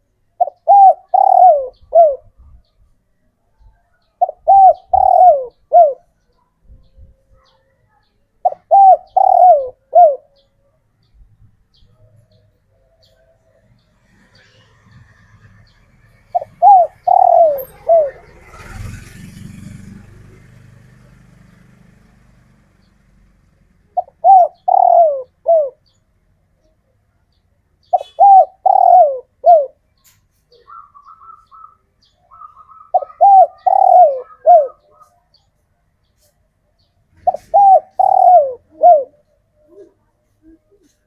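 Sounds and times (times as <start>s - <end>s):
dove cooing: 0.4s - 2.5s, 4.2s - 6.3s, 8.4s - 10.5s, 16.2s - 20.0s, 23.9s - 26.0s, 27.9s - 29.8s, 30.5s - 35.3s, 37.2s - 41.0s.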